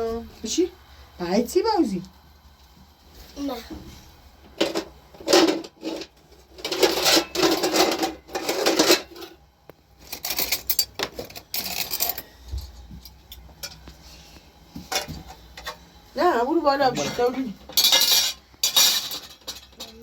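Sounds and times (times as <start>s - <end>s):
metal objects clattering and scraping: 4.6s - 9.4s, 10.0s - 12.3s, 14.8s - 15.8s, 16.9s - 20.0s.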